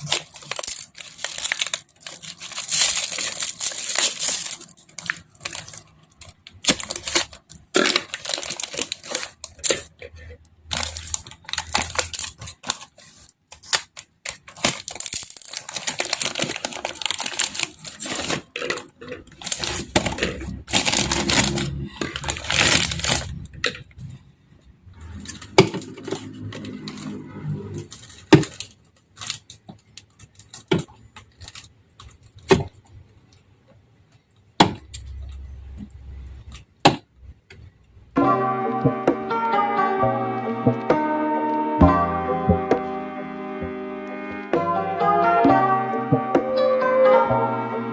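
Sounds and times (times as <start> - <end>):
plastic packaging crinkling: 0.0 - 24.2, 25.0 - 33.4
music: 38.2 - 47.9.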